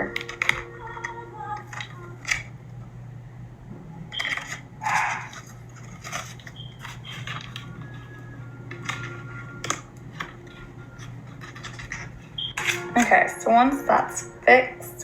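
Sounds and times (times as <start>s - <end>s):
steady low hum: 0.0s - 15.0s
paper plate rustling: 4.1s - 13.3s.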